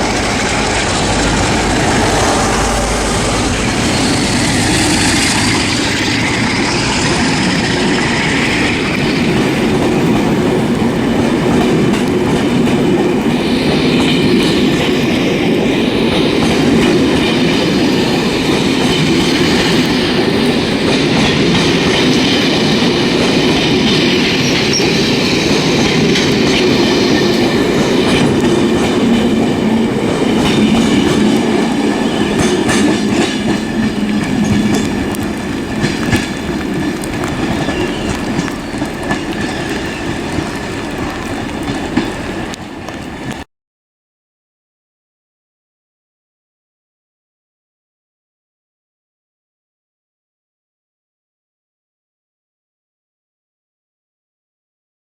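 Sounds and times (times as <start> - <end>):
train wheels clattering: 0.0 - 43.4.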